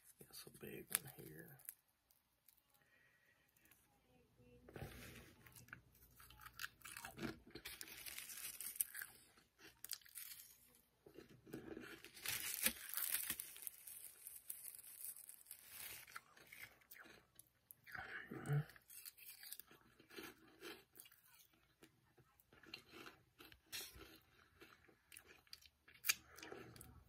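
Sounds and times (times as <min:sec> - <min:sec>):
crunching and chewing chips: 0:05.4 - 0:27.0.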